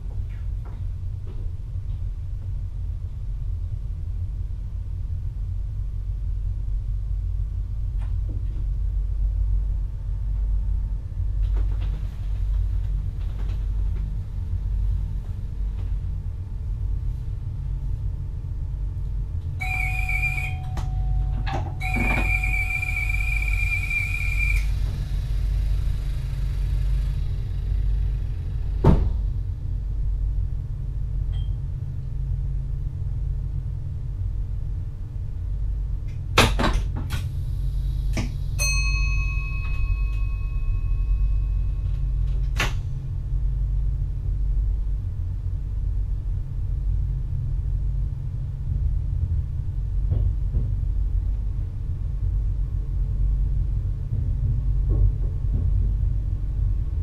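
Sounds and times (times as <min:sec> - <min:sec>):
electric train low rumble: 0:00.0 - 0:57.0
high steady tone: 0:19.6 - 0:25.0.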